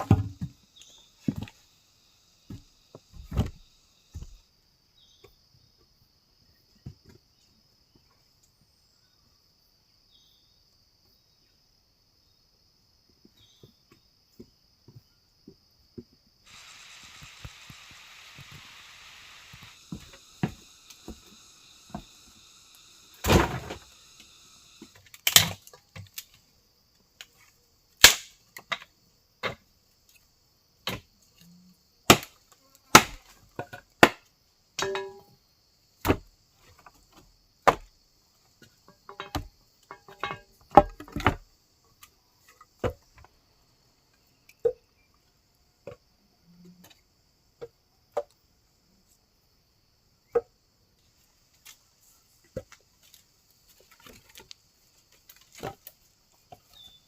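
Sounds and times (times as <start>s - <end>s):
sharp chopping strikes: 32.1s - 32.3s, 32.9s - 33.2s.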